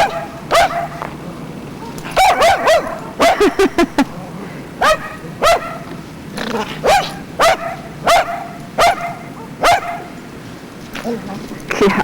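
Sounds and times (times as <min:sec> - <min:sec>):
dog barking: 0:00.0 - 0:01.1, 0:01.7 - 0:03.8, 0:04.8 - 0:05.9, 0:06.6 - 0:10.3.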